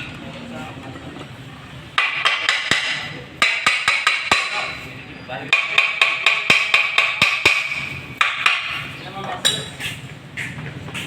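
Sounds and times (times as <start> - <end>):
hammer tapping metal: 2.0 - 4.8, 5.5 - 9.8.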